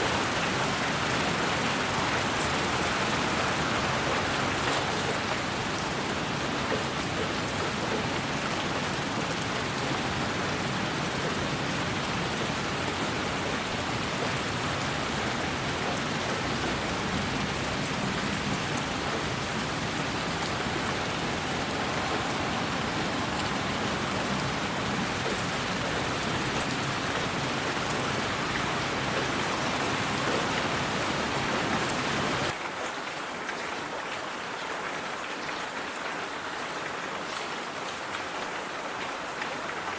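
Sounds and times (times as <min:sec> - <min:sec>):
rain drops ticking: 0:00.0 - 0:33.6
steady rain hiss: 0:00.0 - 0:39.9.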